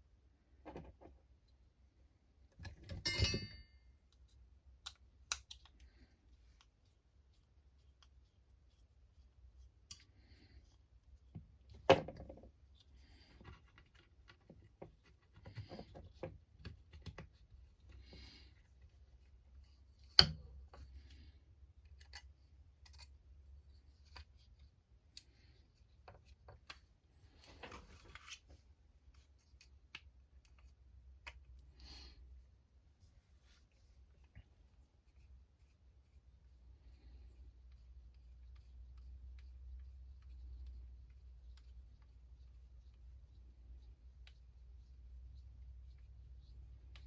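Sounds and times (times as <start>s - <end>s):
small parts clicking and tapping: 4.1s - 6.8s.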